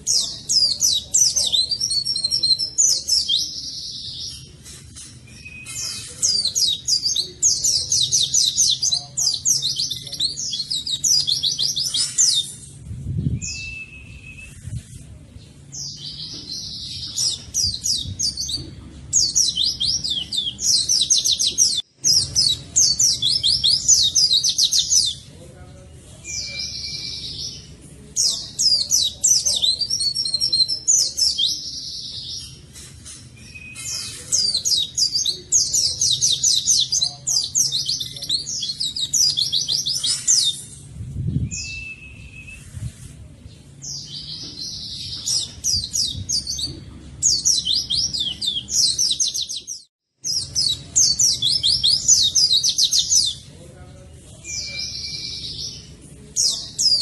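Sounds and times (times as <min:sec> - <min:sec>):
bird chirping rapidly: 0:19.2 - 0:25.3, 0:33.5 - 0:40.7, 0:47.3 - 0:53.5.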